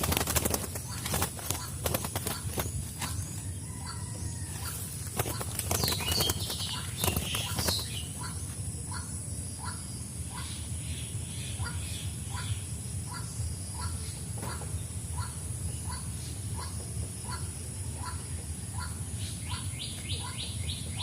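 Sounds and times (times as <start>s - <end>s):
wings flapping against bamboo trap: 0.0s - 3.5s, 4.5s - 8.2s.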